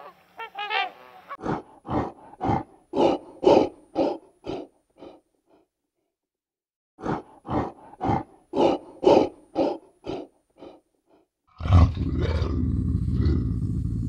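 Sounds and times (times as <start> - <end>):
bear calling: 7.0 - 11.2.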